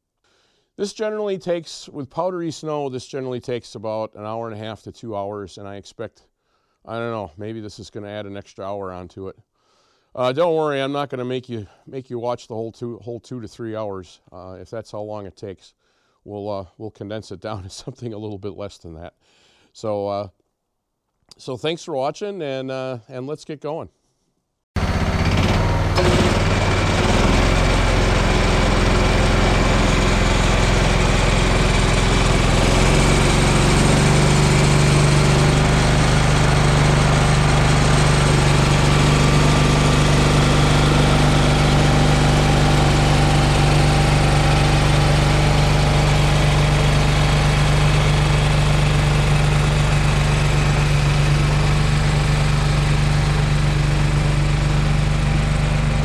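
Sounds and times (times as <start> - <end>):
lawn tractor engine running: 24.8 - 56.0.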